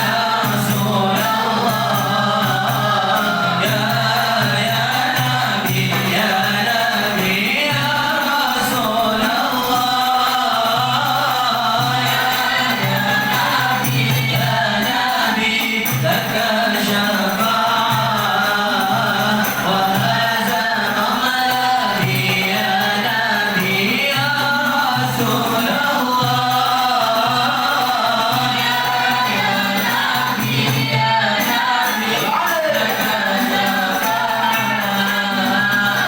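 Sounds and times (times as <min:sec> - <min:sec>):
group chanting in unison: 0:00.0 - 0:36.0
percussion: 0:00.0 - 0:36.0.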